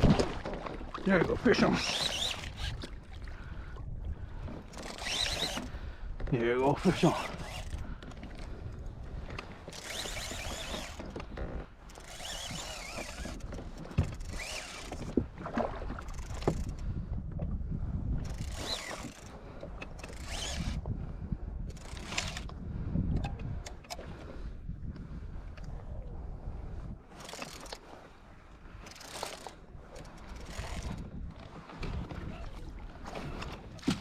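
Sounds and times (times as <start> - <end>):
fishing reel cranking: 1.6 - 3.0, 4.7 - 5.7, 6.7 - 7.9, 9.7 - 15.1, 16.1 - 16.8, 18.2 - 20.8, 21.7 - 22.5, 27.1 - 27.8, 28.8 - 31.1.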